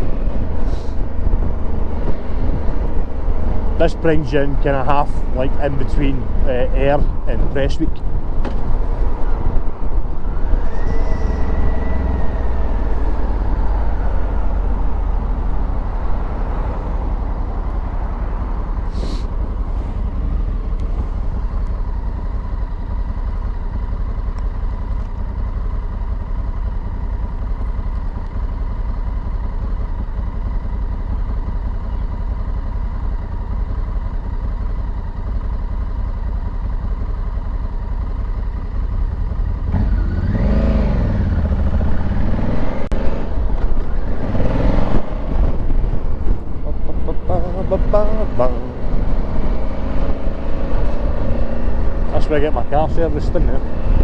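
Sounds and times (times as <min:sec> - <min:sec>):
wind rumble: 0:00.0 - 0:03.8, 0:07.1 - 0:24.4
motorcycle engine running: 0:00.0 - 0:54.0.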